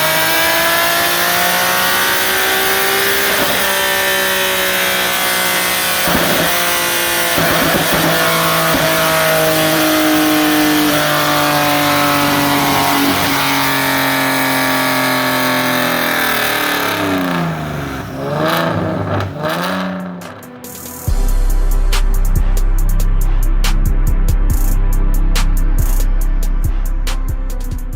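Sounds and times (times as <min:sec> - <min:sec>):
car engine revving loudly: 0:00.0 - 0:21.8.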